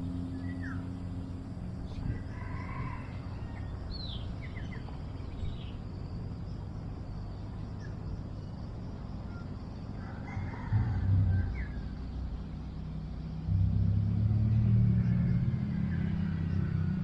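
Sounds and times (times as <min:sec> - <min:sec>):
low rumble: 0:11.0 - 0:17.0.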